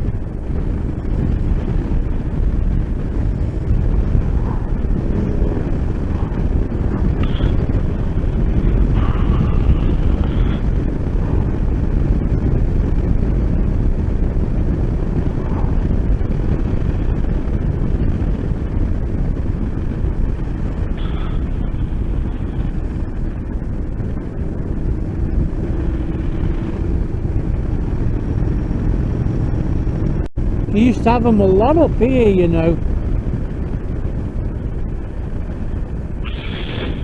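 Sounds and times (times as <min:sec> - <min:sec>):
motorcycle engine: 0:00.0 - 0:37.0
wind rush: 0:00.0 - 0:37.0.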